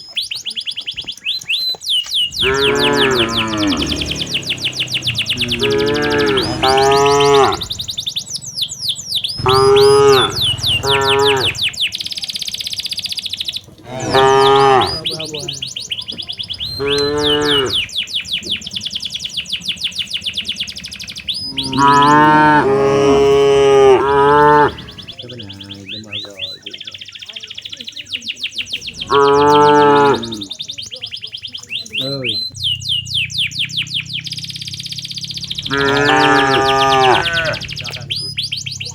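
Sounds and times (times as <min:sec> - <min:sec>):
fast high chirping: 0:00.0 - 0:38.9
cattle mooing: 0:02.3 - 0:08.1, 0:09.4 - 0:11.8, 0:13.7 - 0:15.6, 0:16.6 - 0:17.9, 0:21.4 - 0:26.0, 0:28.9 - 0:30.6, 0:34.2 - 0:38.9.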